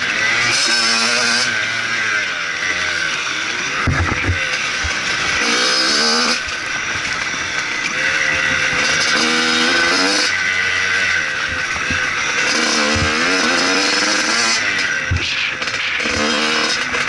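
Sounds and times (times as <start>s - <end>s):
motocross bike engine revving: 0.0s - 17.0s
low thumps: 3.9s - 5.0s.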